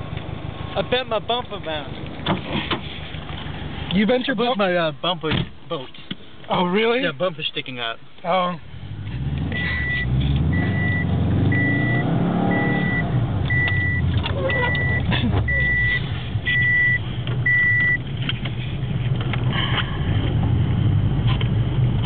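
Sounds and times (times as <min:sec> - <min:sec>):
car engine revving: 0:08.8 - 0:22.0
short electronic beeps: 0:09.6 - 0:18.0.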